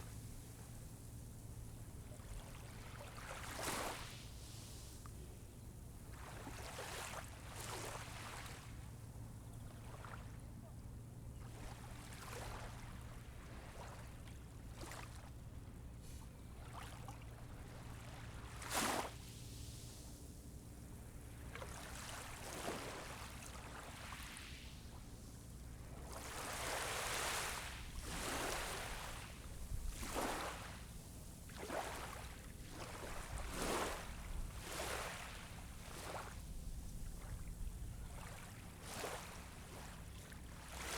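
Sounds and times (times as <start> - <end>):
small waves washing onto beach: 25.8 - 40.9.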